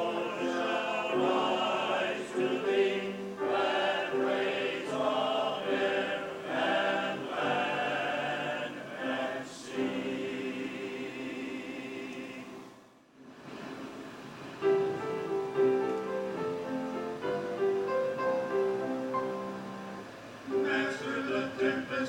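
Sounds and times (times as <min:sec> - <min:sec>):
choir singing: 0:00.0 - 0:12.9, 0:19.2 - 0:22.0.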